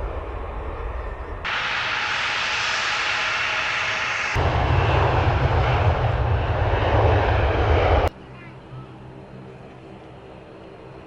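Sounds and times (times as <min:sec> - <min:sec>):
hissing jet engine noise: 0:00.0 - 0:08.1
deep jet engine rumble: 0:00.0 - 0:11.0.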